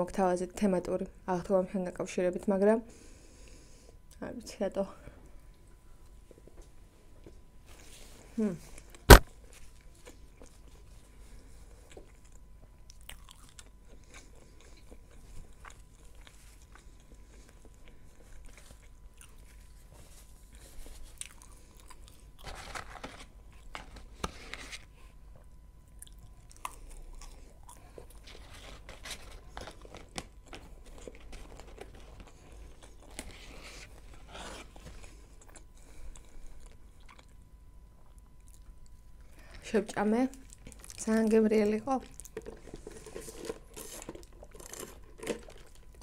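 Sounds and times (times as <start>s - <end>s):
chewing french fries: 8.7s - 22.6s, 25.3s - 33.7s, 35.0s - 39.6s, 40.3s - 43.0s.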